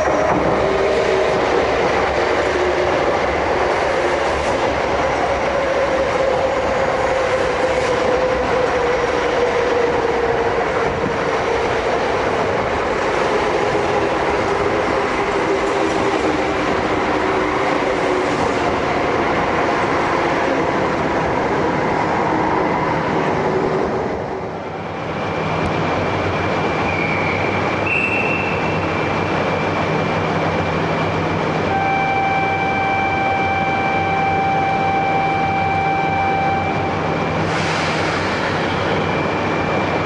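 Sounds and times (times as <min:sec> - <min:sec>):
train running noise: 0:00.0 - 0:40.0
steady high tone: 0:31.7 - 0:37.4.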